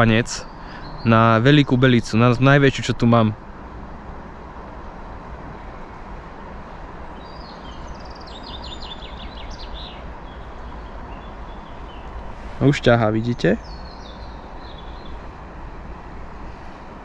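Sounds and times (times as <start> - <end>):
songbird chirping: 0.0 - 2.6, 7.1 - 15.4
outdoor background noise: 0.0 - 17.0.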